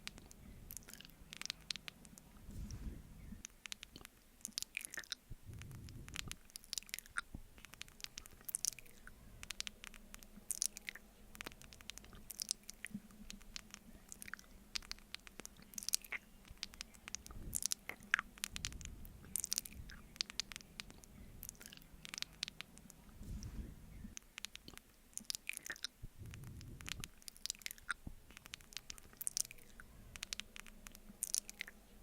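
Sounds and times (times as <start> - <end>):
low chewing thumps: 0.0 - 31.7
lip and tongue smacks: 0.0 - 31.8.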